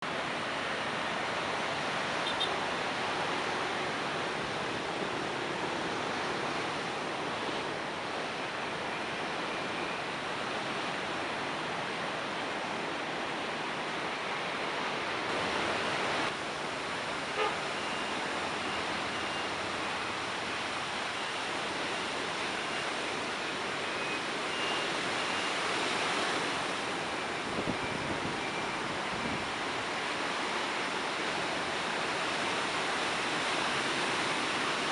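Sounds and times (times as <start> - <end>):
faint high beeps: 17.8 - 19.6, 23.8 - 25.6.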